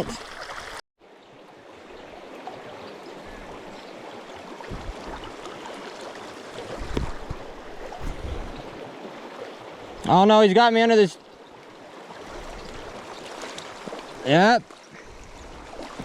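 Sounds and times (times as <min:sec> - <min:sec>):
small river flowing: 0:00.0 - 0:16.0
low dull bumps: 0:04.7 - 0:05.4.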